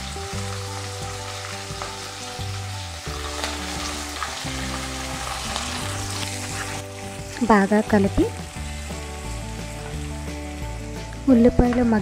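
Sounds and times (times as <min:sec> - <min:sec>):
onions sizzling in hot oil: 0:00.0 - 0:12.0
soft background music: 0:00.0 - 0:12.0
spatula stirring: 0:05.4 - 0:06.9.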